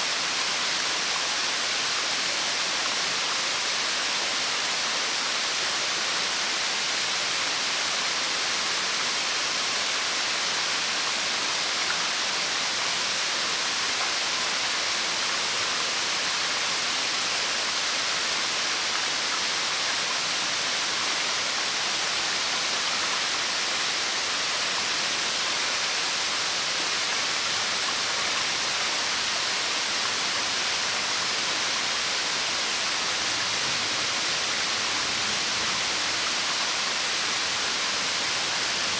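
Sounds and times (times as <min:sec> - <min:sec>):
waterfall hissing: 0:00.0 - 0:38.9.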